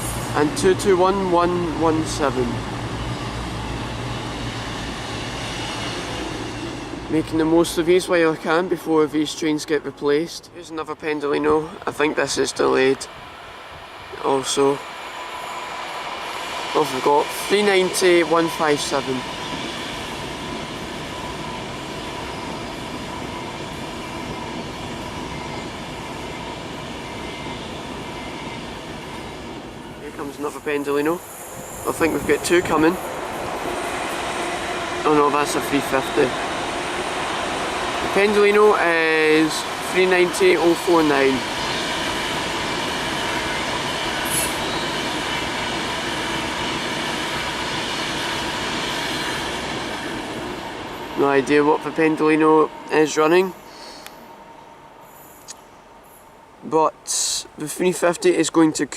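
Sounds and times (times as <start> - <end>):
train whine: 0.0 - 58.9
wheels rumbling on rail: 0.0 - 58.9.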